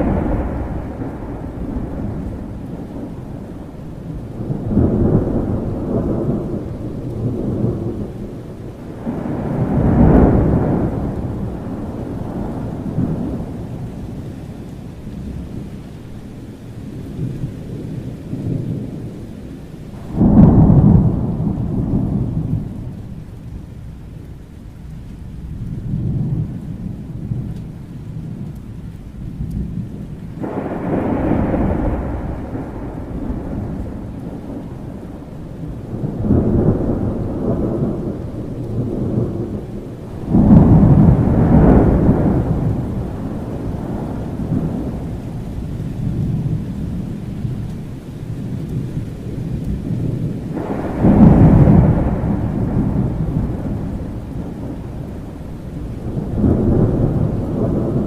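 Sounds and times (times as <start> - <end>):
loud thunderclap: 0.0 - 14.1, 20.0 - 23.2, 29.3 - 47.7, 48.4 - 58.0
rolling thunder: 0.0 - 58.0
steady rain: 0.0 - 58.0.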